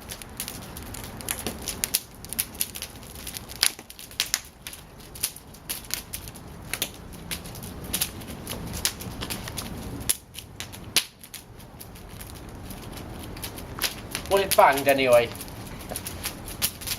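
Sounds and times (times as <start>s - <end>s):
bonfire crackling and popping: 0.0s - 16.9s.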